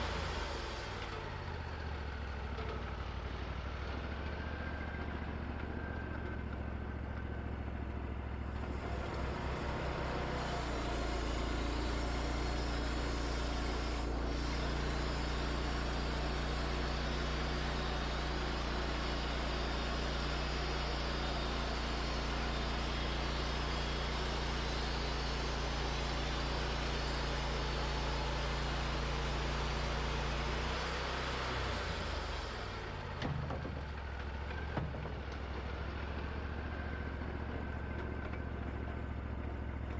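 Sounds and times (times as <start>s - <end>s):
sawmill engine hum: 0.0s - 39.9s
band blade sawing through log: 8.6s - 32.9s.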